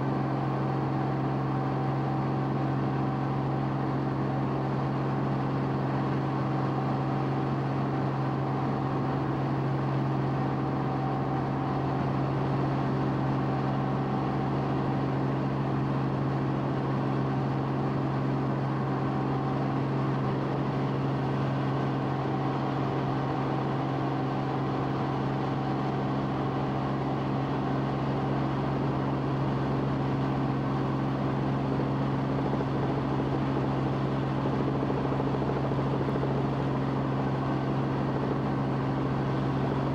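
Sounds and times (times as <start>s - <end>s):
aircraft engine drone: 17.1s - 39.9s.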